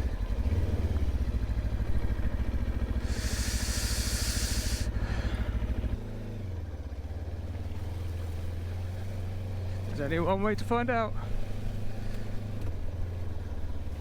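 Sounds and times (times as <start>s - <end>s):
motorcycle engine running roughly: 0.0s - 14.0s
loud hiss: 3.0s - 5.4s.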